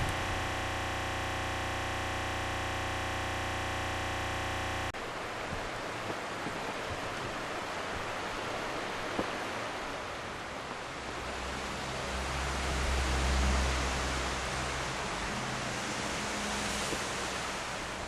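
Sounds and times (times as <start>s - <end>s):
river water rushing: 5.0s - 18.0s.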